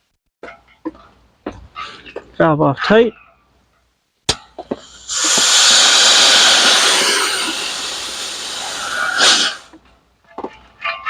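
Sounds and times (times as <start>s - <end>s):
pressurised gas hissing: 4.6s - 9.8s.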